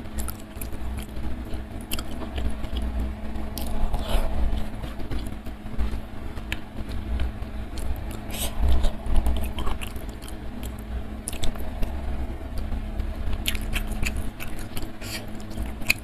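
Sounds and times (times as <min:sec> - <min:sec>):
low rumble and hum: 0:00.0 - 0:16.0
chewing with wet mouth clicks: 0:00.2 - 0:02.9, 0:07.8 - 0:11.9, 0:13.3 - 0:16.0.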